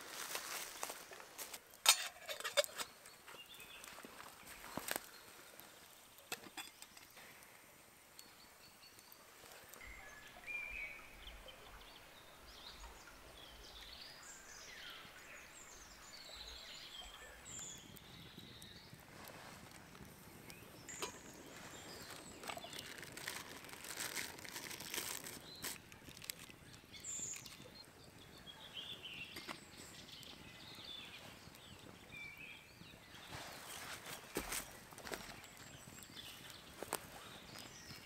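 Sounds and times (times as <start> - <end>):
woodland birds chirping: 0.0 - 38.0
light clicks and crackles: 0.2 - 8.3, 17.5 - 28.3, 33.2 - 38.0.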